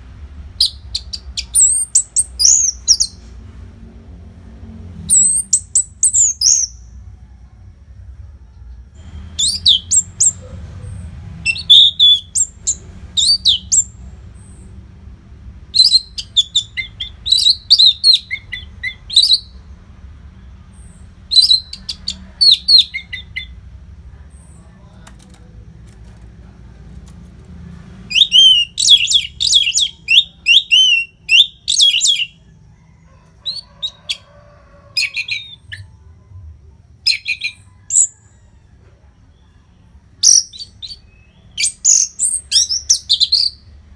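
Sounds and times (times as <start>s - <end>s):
thrush singing whistled phrases: 9.4s - 10.4s, 11.5s - 14.0s, 15.7s - 19.6s, 21.3s - 23.6s, 28.1s - 32.4s.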